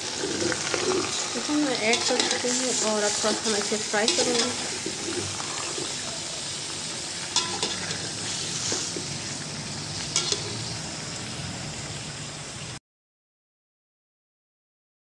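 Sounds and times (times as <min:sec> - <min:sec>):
chicken sizzling in a pot: 0:00.0 - 0:12.8
metal spoon scraping a pot: 0:00.2 - 0:06.0, 0:07.3 - 0:09.1, 0:10.1 - 0:10.7.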